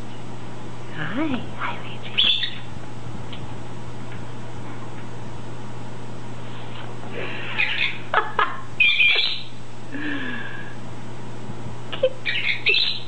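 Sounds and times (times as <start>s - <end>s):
steady low hum: 0.0s - 13.0s
parrot squawking and whistling: 2.1s - 2.6s, 7.5s - 8.0s, 8.8s - 9.5s, 12.2s - 13.0s.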